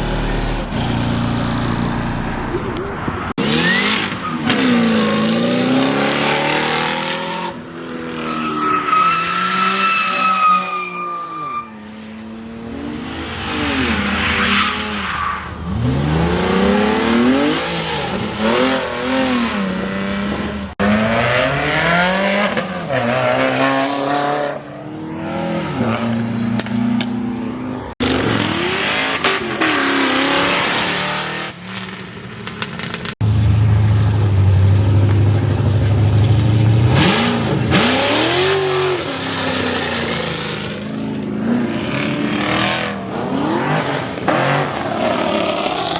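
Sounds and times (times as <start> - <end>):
car engines revving: 0.0 - 45.9.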